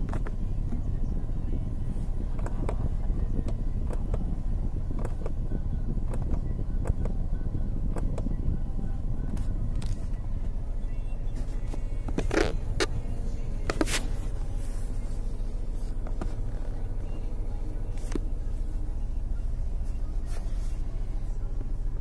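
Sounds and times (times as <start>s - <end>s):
car engine idling: 0.0s - 22.0s
light clicks and scrapes from handling: 13.6s - 16.8s.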